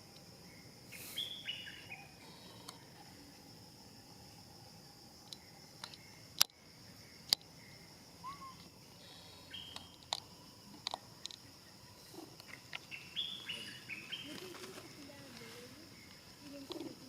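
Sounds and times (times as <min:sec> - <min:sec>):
high insect drone: 0:00.0 - 0:17.0
short chirping calls: 0:00.9 - 0:02.8, 0:07.6 - 0:10.0, 0:12.8 - 0:14.5.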